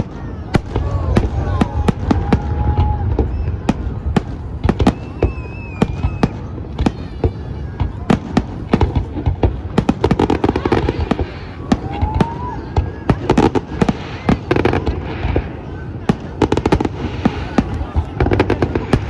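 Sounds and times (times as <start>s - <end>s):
wavering firework whistle: 0.0s - 7.3s
fireworks bursting: 0.0s - 19.0s
low rumble of explosions: 0.0s - 19.0s.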